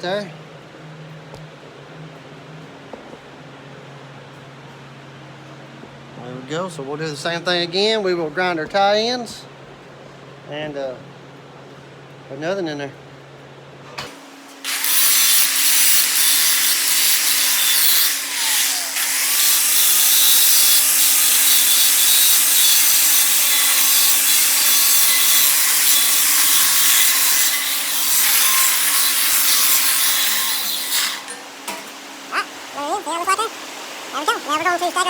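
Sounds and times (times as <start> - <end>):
angle grinder grinding metal: 14.6 - 35.0.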